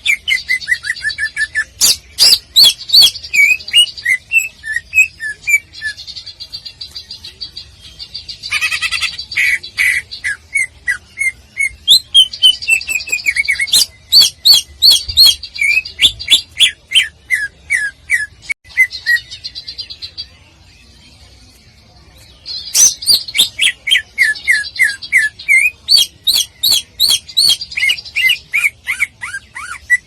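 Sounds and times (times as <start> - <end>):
bird singing chirps and whistles: 0.0 - 6.0, 9.9 - 19.4, 22.7 - 30.0.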